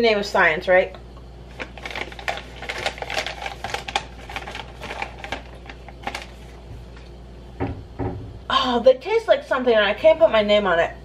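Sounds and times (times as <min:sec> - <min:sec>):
dull low knock: 0:07.6 - 0:08.4.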